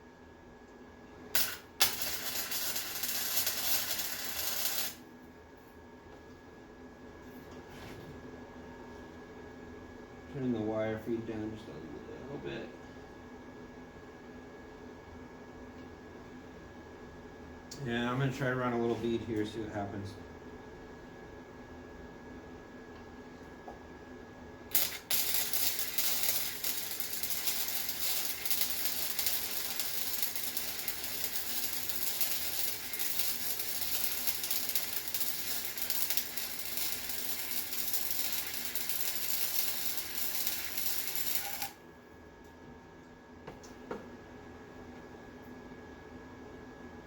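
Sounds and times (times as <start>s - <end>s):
steady hum: 0.0s - 7.2s, 8.2s - 47.0s
welding arc crackling: 1.4s - 5.0s, 24.7s - 41.8s
welding arc striking pop: 1.4s - 5.0s, 24.7s - 41.7s.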